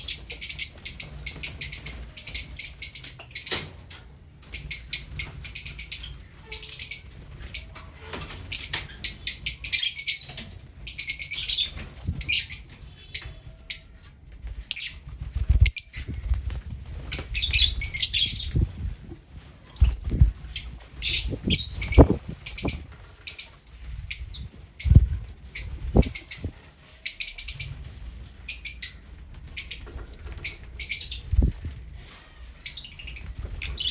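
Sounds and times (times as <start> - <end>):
wing flutters: 14.2 - 33.9
birds chattering shrill chirps: 17.0 - 18.8, 19.8 - 31.5.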